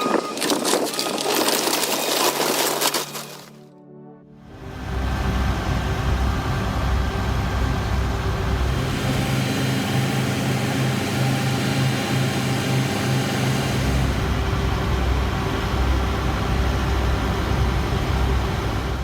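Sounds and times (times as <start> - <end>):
heavy vehicle engine running: 4.5 - 19.0.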